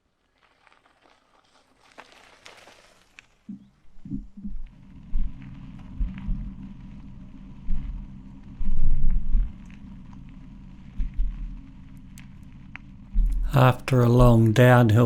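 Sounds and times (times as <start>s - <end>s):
tyre noise on gravel: 0.0s - 3.5s.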